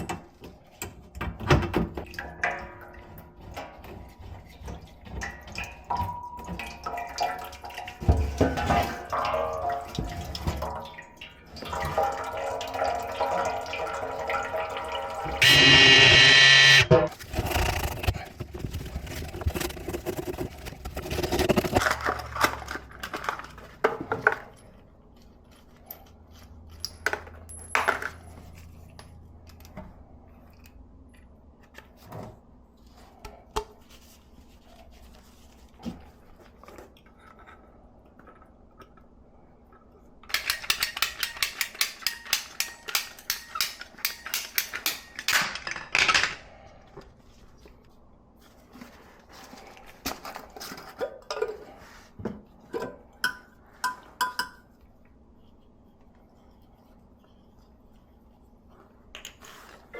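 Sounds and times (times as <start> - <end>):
low hum: 15.4 - 21.8
rapid scraping strokes: 17.1 - 21.8
tools and pipe parts clinking: 25.8 - 28.5, 40.3 - 46.6.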